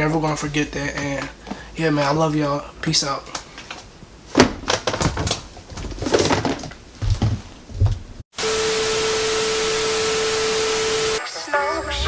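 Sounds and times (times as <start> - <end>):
handling knocks and thumps: 3.4 - 8.2.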